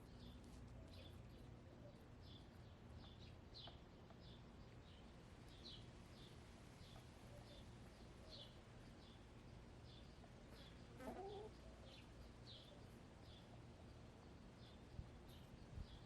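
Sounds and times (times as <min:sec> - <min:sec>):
hen clucking: 0:11.0 - 0:11.5.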